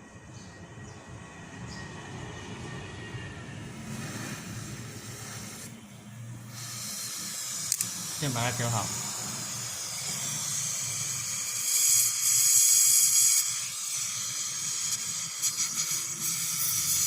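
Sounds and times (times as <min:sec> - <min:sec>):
gas torch flame hissing: 0:03.6 - 0:17.0.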